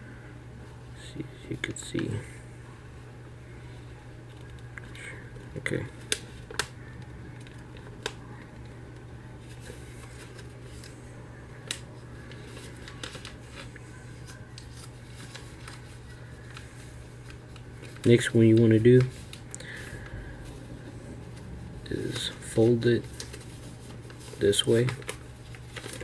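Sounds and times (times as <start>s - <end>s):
low hum: 0.0s - 26.0s
paper rustling and crackling: 5.4s - 11.0s, 11.6s - 26.0s.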